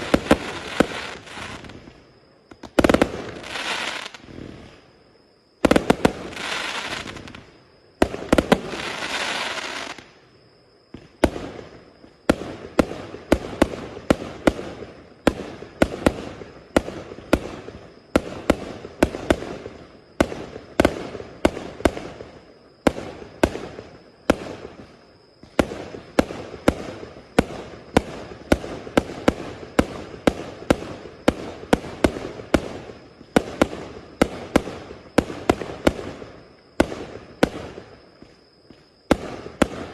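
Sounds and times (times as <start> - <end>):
firework hissing crackle: 0.0 - 5.0, 5.6 - 10.2
firework shots: 5.6 - 10.0, 39.0 - 39.9.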